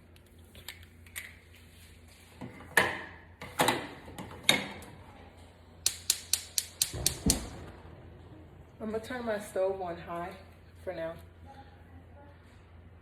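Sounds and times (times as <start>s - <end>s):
sharp knocks: 6.8s - 7.8s.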